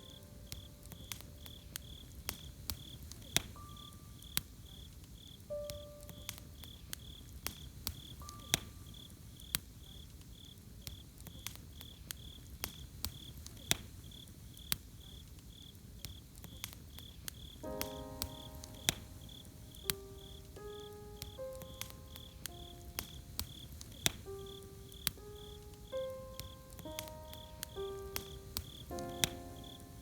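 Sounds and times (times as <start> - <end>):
soft sustained music notes: 0.0 - 4.3, 5.5 - 6.7, 17.6 - 30.0
cricket chirping: 0.0 - 13.4, 14.0 - 30.0
campfire crackling and popping: 0.0 - 30.0.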